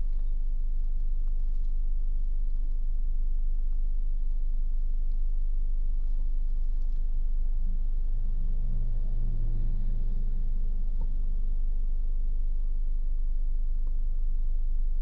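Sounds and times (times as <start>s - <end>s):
engine hum: 6.6s - 12.7s
road and engine rumble: 6.8s - 12.3s.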